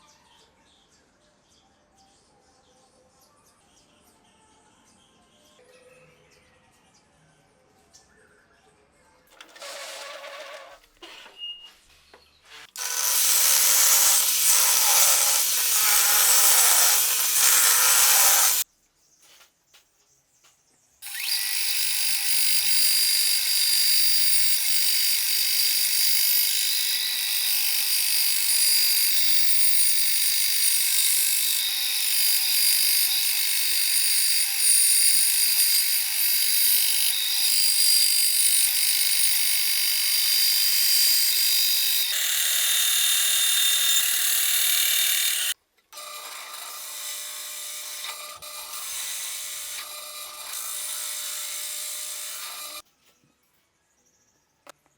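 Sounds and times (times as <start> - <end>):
power tool cutting wood: 9.4 - 10.9, 12.6 - 18.6, 21.0 - 52.8
power tool high hum: 12.8 - 18.6, 21.0 - 52.8.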